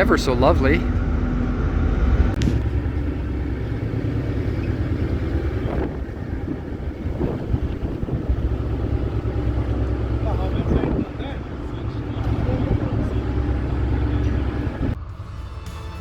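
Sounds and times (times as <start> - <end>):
wind or water noise: 0.0 - 15.1
low engine rumble: 0.0 - 15.7.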